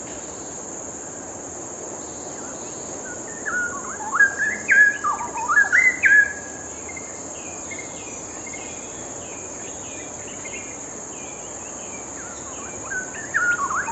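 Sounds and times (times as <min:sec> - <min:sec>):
bird singing gliding phrase: 0:07.4 - 0:13.9.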